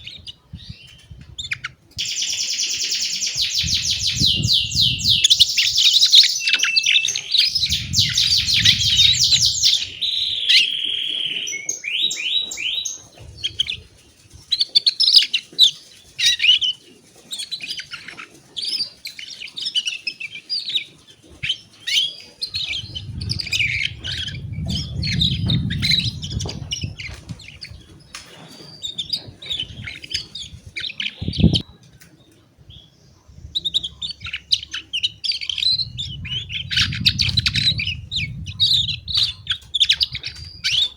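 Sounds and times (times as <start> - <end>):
canary singing: 0.0 - 40.9
low rumble: 7.5 - 10.1, 22.6 - 27.5, 35.6 - 40.6.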